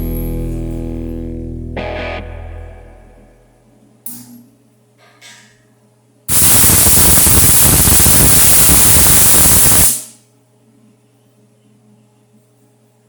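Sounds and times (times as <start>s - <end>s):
arc welder crackling hiss: 6.3s - 10.2s.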